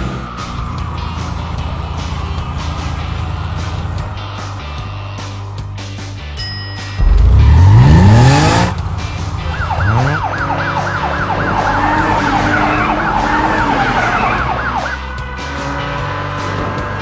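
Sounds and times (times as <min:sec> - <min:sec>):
emergency siren warbling: 0:07.0 - 0:08.8, 0:09.6 - 0:15.0
rising pitch sweep: 0:07.0 - 0:08.8.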